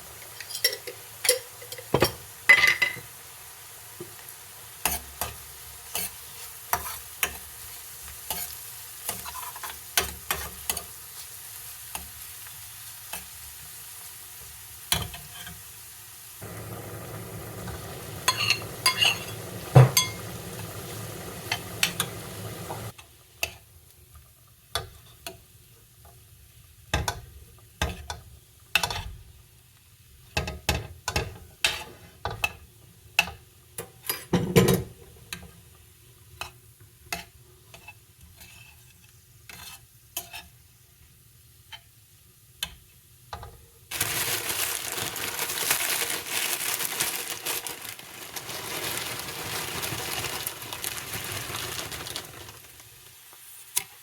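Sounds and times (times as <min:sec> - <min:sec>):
steady sizzle: 0:00.0 - 0:54.0
utensil stirring and tapping a pan: 0:00.2 - 0:03.1, 0:04.8 - 0:12.2, 0:17.2 - 0:23.6, 0:24.7 - 0:25.4, 0:26.9 - 0:29.2, 0:30.2 - 0:35.6, 0:36.3 - 0:40.6.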